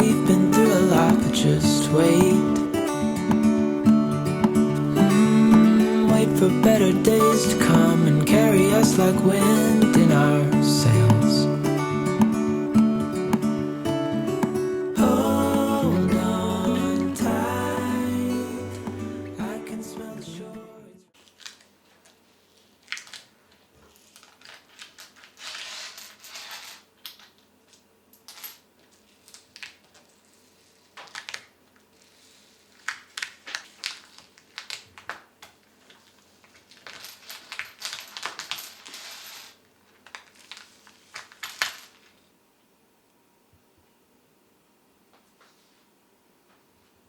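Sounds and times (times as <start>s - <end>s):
small hard objects clinking: 36.0s - 42.1s.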